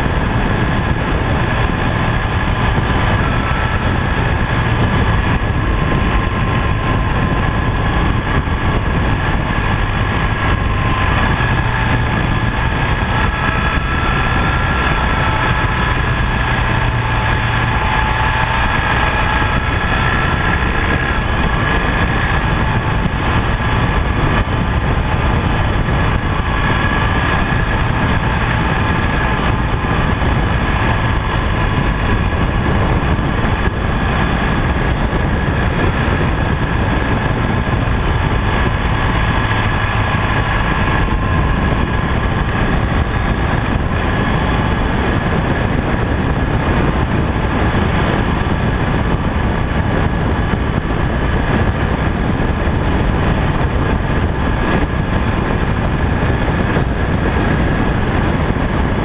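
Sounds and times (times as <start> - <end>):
continuous rushing noise: 0.0 - 59.0
motorcycle engine running: 0.0 - 59.0.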